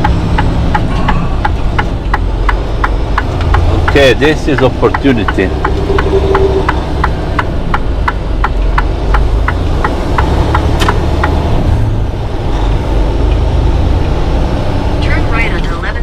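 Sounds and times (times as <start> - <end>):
turn signal clicking: 0.0 - 11.5
truck engine droning: 0.0 - 16.0.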